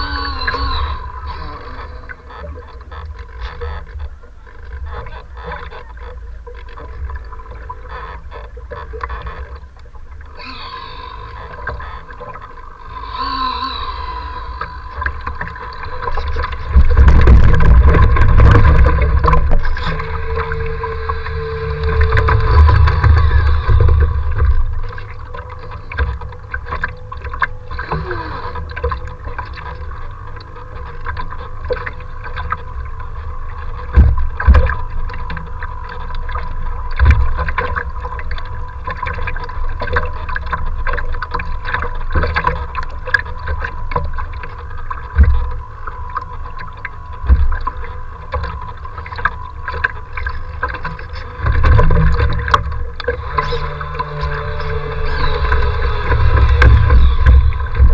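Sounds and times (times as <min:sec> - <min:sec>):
faint steady whine: 0:00.0 - 0:57.9
wind buffeting microphone: 0:14.6 - 0:25.4, 0:51.4 - 0:57.9.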